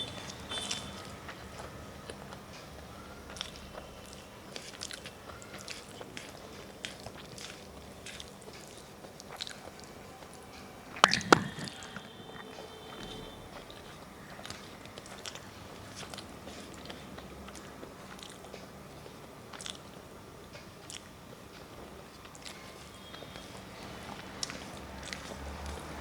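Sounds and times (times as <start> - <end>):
person chewing food: 0.2 - 26.0
mouth clicks: 10.9 - 13.8.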